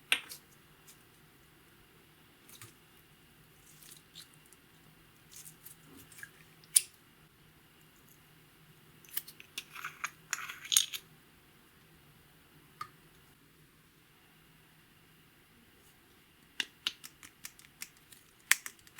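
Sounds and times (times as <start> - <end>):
clicks of small hard objects: 16.6 - 18.9.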